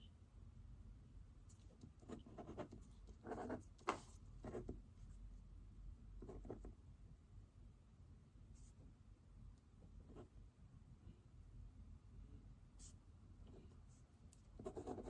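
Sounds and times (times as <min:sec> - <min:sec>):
pen scratching on paper: 0:01.5 - 0:04.8, 0:06.2 - 0:06.8, 0:14.6 - 0:15.0.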